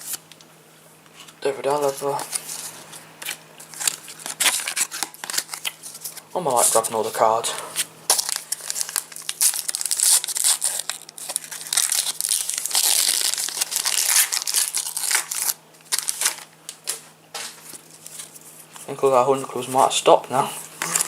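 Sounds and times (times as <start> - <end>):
foil packet tearing and crinkling: 1.8 - 6.8, 8.1 - 16.9.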